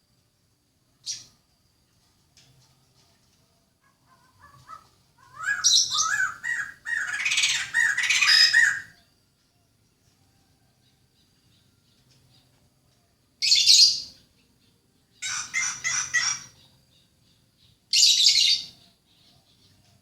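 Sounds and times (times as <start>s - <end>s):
bird harsh call: 3.8s - 9.0s, 15.2s - 16.8s.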